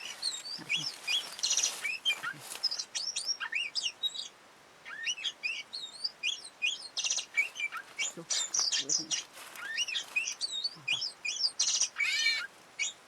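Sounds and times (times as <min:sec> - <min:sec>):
bird singing whistled notes: 0:04.9 - 0:12.2.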